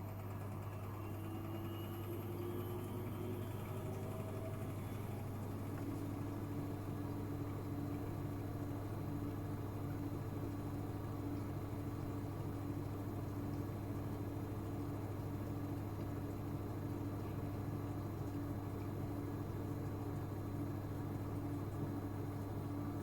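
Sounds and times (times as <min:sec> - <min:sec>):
washing machine hum: 0:00.0 - 0:23.0.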